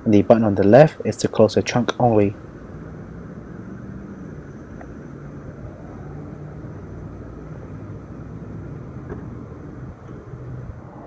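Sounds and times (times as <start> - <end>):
power liftgate motor humming: 2.4 - 10.8.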